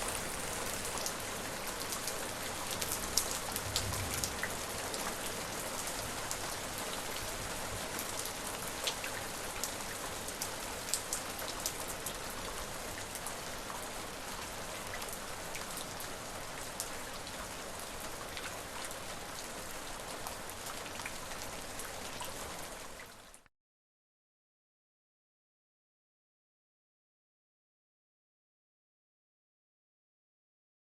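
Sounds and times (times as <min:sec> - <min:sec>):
rain pattering on a surface: 0:00.0 - 0:23.5.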